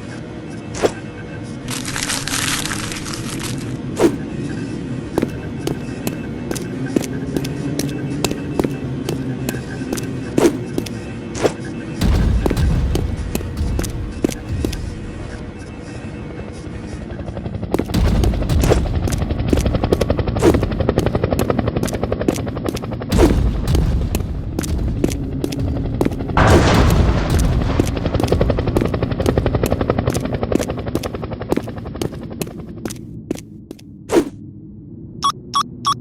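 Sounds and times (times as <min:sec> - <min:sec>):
heavy explosions: 0:12.0 - 0:15.7, 0:17.9 - 0:21.1, 0:23.1 - 0:30.1.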